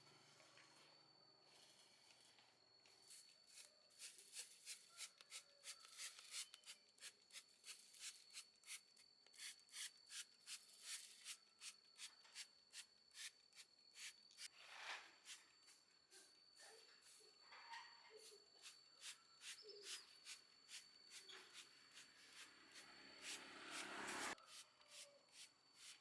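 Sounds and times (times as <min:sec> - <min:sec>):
faint rubbing strokes: 0:18.6 - 0:25.1.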